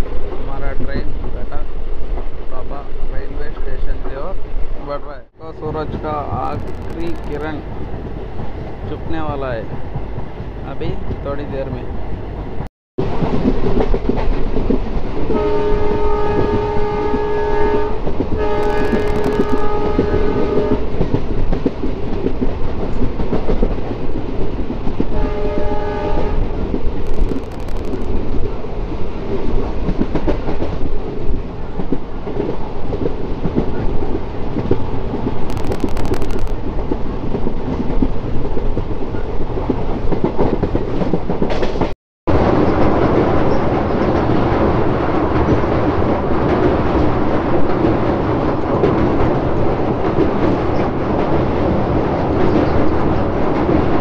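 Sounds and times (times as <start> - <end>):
train running noise and rushing air: 0.0 - 54.0
train horn blasts: 15.3 - 20.9, 25.1 - 26.5.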